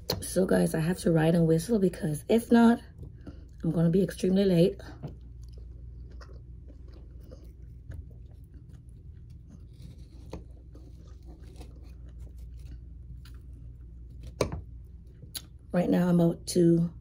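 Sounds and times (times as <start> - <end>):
low hum: 0.0 - 17.0
person chewing food: 2.9 - 3.6, 4.8 - 15.7.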